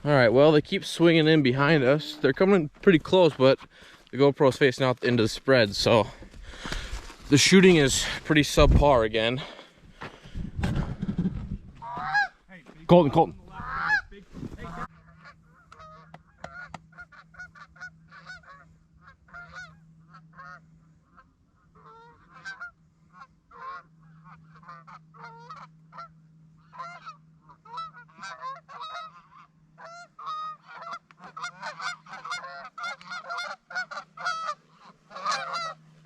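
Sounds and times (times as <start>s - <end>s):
geese honking: 0.0s - 4.0s, 11.8s - 36.0s
faint low hum: 0.0s - 36.0s.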